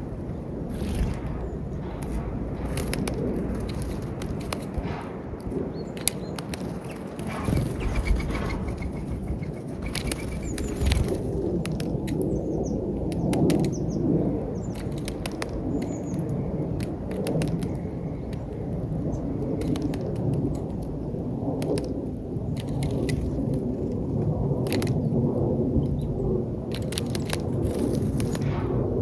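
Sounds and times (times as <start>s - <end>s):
low rumble: 0.0s - 11.6s, 27.6s - 29.0s
birds pecking peanuts: 0.7s - 13.9s, 14.6s - 18.8s, 19.6s - 21.0s, 21.6s - 23.9s.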